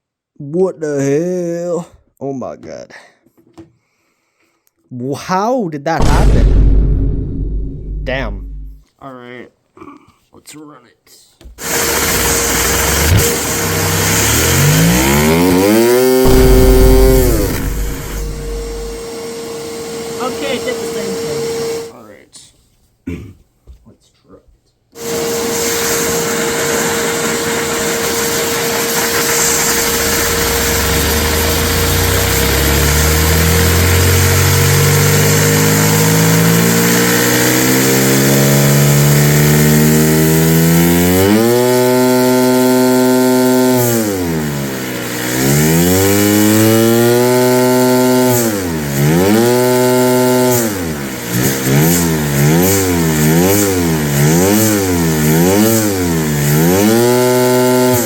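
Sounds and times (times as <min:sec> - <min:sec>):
small piston engine humming: 0:11.6 - 0:19.2, 0:28.1 - 0:36.8
hiss of vacuum suction: 0:11.6 - 0:19.8, 0:25.0 - 0:37.5.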